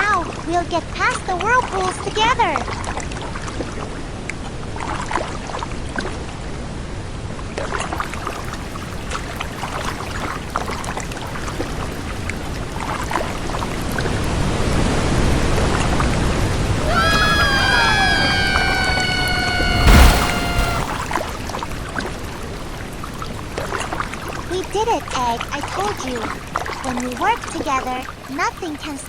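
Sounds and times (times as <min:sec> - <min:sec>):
water splashes: 0:07.5 - 0:29.0
river water rushing: 0:08.0 - 0:24.3.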